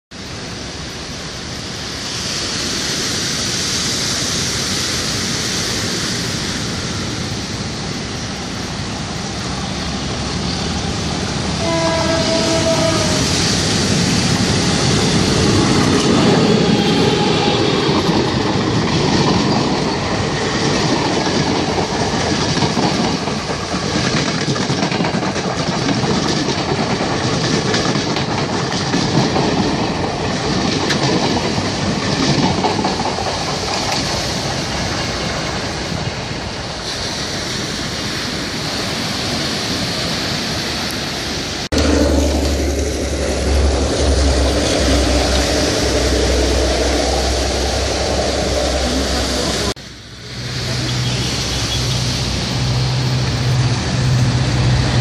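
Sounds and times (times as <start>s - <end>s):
train engine and wheel rumble: 0.1s - 55.0s
train carriages rushing past: 0.2s - 55.0s
train horn blast: 11.5s - 13.6s, 41.7s - 49.7s.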